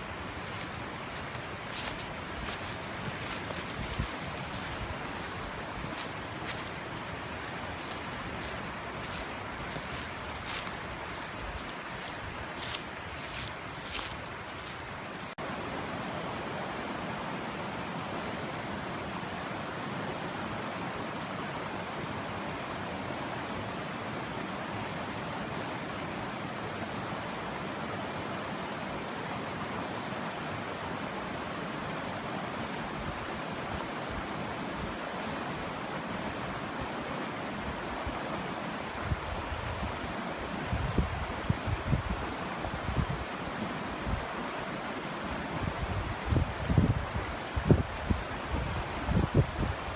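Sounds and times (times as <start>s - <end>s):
wind buffeting microphone: 0.0s - 15.1s
stream water rushing: 0.0s - 25.1s.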